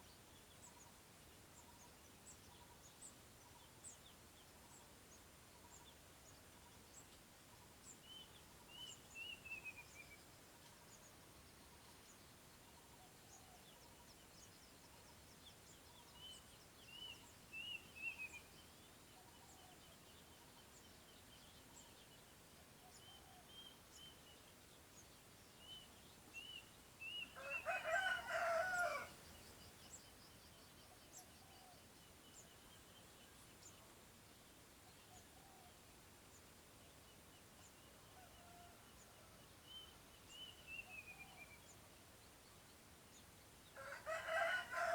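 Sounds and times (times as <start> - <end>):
rooster crowing: 27.4 - 29.1, 43.8 - 44.9.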